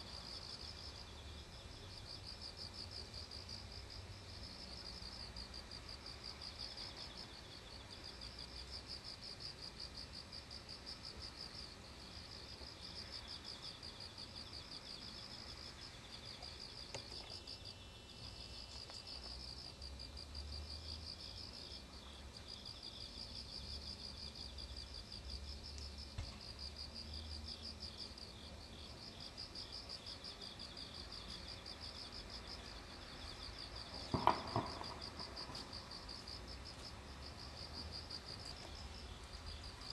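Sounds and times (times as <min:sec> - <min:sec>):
insects chirping trill: 0:00.1 - 0:39.9
loud knock: 0:34.1 - 0:35.0.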